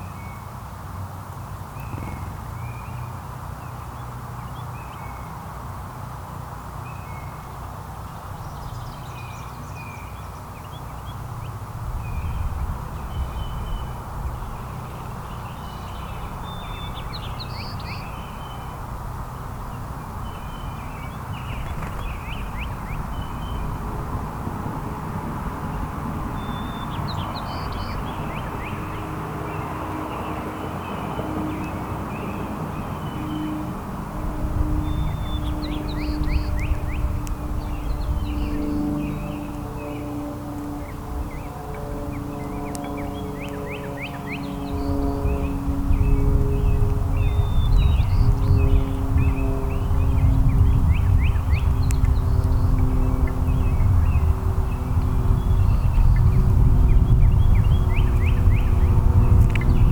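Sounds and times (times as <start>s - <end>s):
songbirds chirping: 6.8s - 59.9s
low background rumble: 31.6s - 59.9s.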